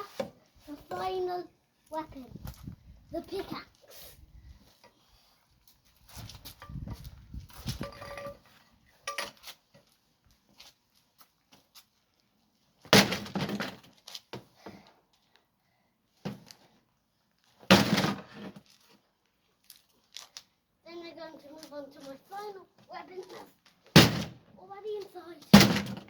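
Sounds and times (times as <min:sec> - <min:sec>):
light clinks and knocks: 0:07.8 - 0:09.5.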